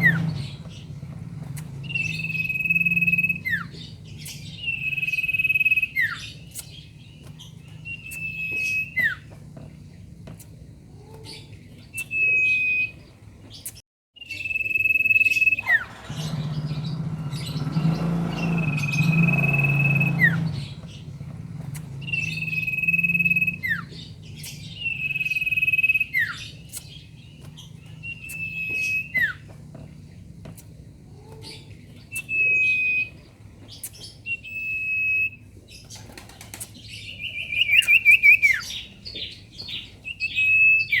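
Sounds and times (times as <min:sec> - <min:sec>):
bird whistling call: 0:00.0 - 0:00.9, 0:01.5 - 0:06.8, 0:07.8 - 0:09.3, 0:11.3 - 0:13.0, 0:14.2 - 0:27.1, 0:27.7 - 0:29.5, 0:32.1 - 0:35.4, 0:37.2 - 0:38.9, 0:39.7 - 0:41.0.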